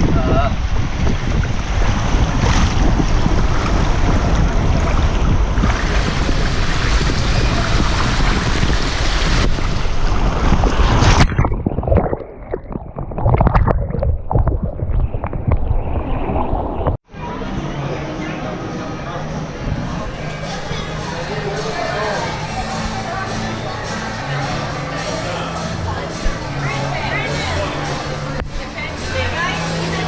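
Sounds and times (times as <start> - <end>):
dull fluttering noise: 0.0 - 17.0
rush of wind and water: 0.0 - 17.0.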